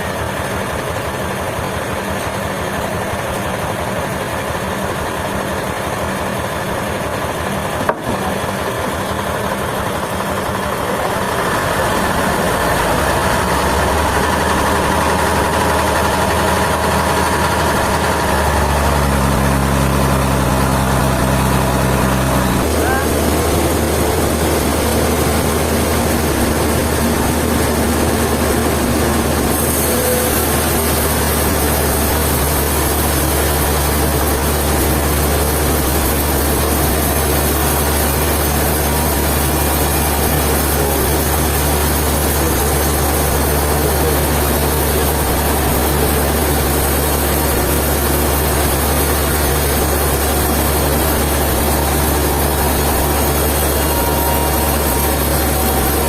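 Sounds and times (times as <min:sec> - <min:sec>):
sawmill engine hum: 0:00.0 - 0:56.0
machinery hiss: 0:11.2 - 0:56.0.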